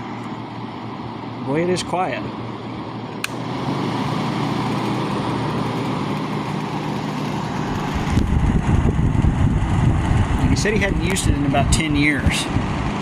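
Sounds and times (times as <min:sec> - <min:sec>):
air conditioner fan rushing: 0:00.0 - 0:13.0
switch click: 0:03.2 - 0:03.4.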